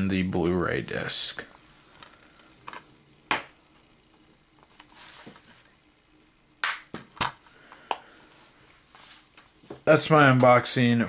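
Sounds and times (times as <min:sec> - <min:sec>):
soft rustle: 0:04.6 - 0:05.8, 0:08.1 - 0:10.6.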